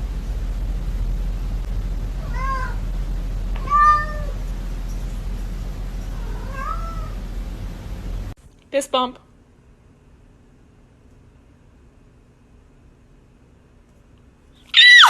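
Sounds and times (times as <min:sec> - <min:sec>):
steady low hum: 0:00.0 - 0:14.7
cat meowing: 0:02.2 - 0:02.8, 0:03.6 - 0:04.4, 0:06.1 - 0:07.2, 0:14.8 - 0:15.0.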